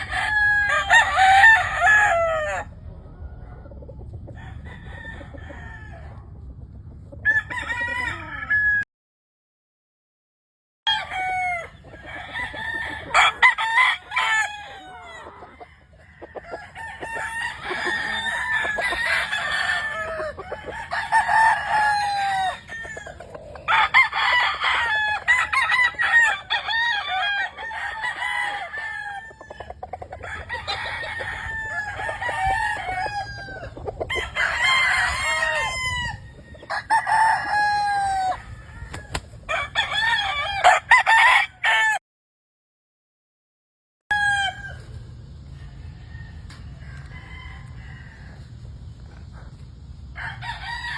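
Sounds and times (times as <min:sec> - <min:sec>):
roosters crowing: 0:00.0 - 0:06.4, 0:07.0 - 0:08.9, 0:10.9 - 0:42.0, 0:44.1 - 0:50.9
chickens clucking: 0:01.8 - 0:07.2, 0:11.5 - 0:39.4.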